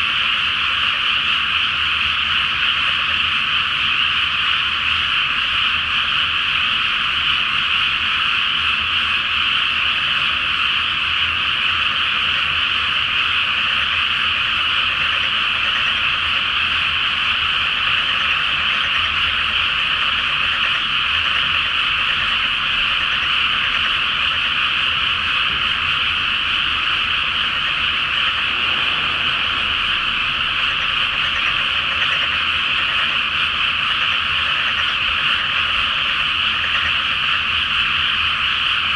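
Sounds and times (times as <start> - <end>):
chorus of frogs calling: 18.0 - 38.8.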